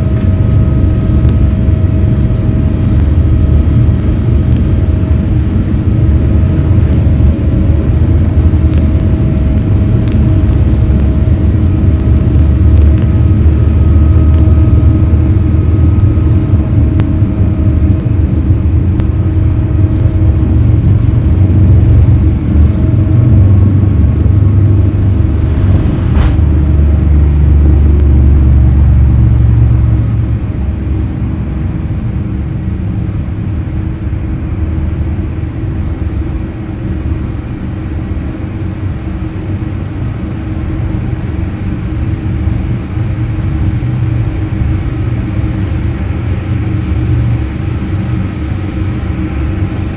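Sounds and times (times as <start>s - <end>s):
airliner cabin rumble: 0.0s - 49.9s.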